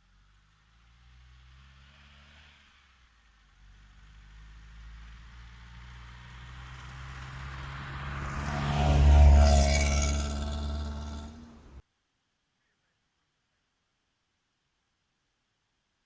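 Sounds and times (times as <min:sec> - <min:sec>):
car driving past: 0:00.1 - 0:11.8.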